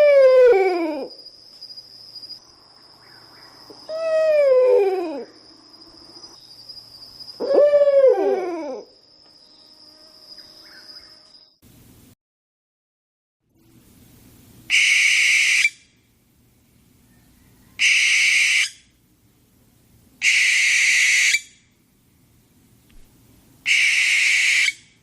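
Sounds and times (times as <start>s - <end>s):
owl calling: 3.8s - 5.4s, 7.4s - 8.9s, 14.7s - 15.8s, 17.4s - 18.9s, 20.2s - 21.6s, 23.6s - 24.9s.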